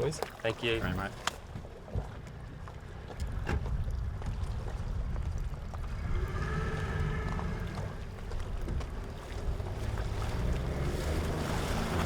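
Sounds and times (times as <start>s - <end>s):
motorboat engine rumbling: 0.0s - 12.0s
wind on microphone: 3.2s - 12.0s.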